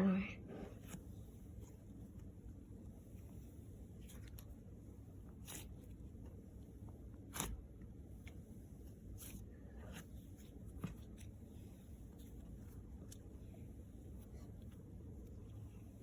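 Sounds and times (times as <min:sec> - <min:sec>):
hands squishing slime: 0:03.2 - 0:06.4.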